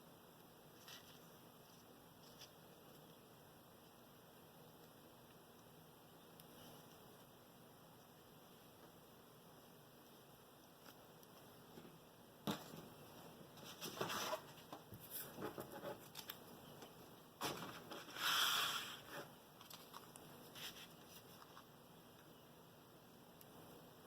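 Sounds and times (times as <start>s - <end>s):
paper rustling and rubbing: 13.6s - 16.4s, 17.4s - 21.6s.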